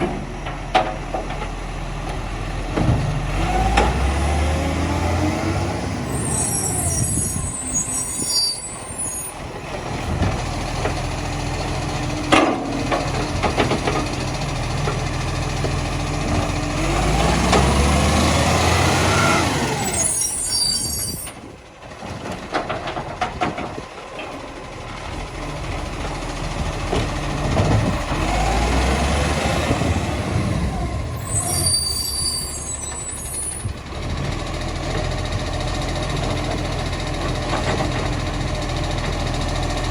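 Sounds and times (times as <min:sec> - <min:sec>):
diesel engine revving: 0:00.0 - 0:20.9, 0:24.7 - 0:39.9.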